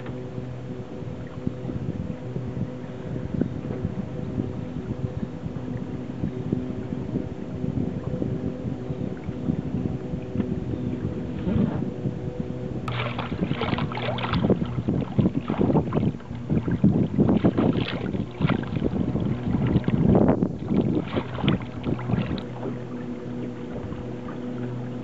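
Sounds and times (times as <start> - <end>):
steady low hum: 0.0 - 25.0
water slapping against boat hull: 7.5 - 25.0.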